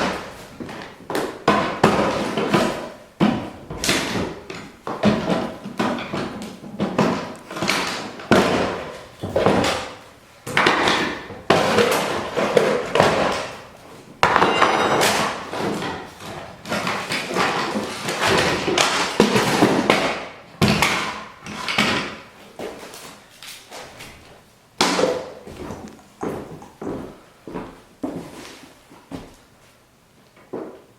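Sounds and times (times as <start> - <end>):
boxes being smashed: 14.2 - 22.2.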